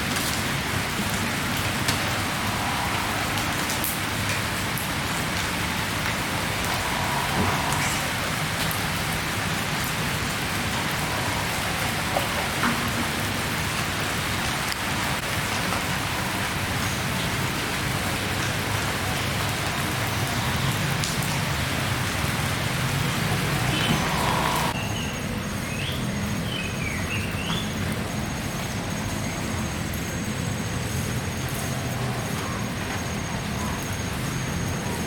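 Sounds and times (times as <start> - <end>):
heavy rain falling: 0.0 - 35.0.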